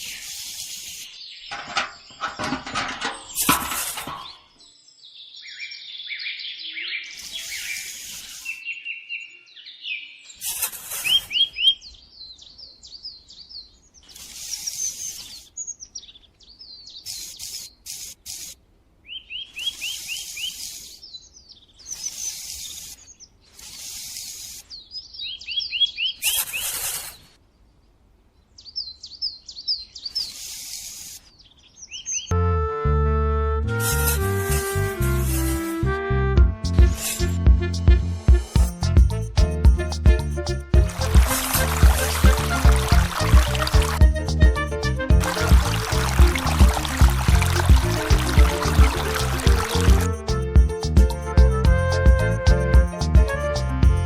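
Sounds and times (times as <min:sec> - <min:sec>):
small birds chirping: 0:00.0 - 0:02.5, 0:03.1 - 0:32.3, 0:40.2 - 0:44.6, 0:45.2 - 0:51.6
short rasping scraping noise: 0:01.5 - 0:04.4, 0:10.4 - 0:11.3, 0:26.2 - 0:27.3, 0:33.8 - 0:35.8, 0:36.8 - 0:37.4.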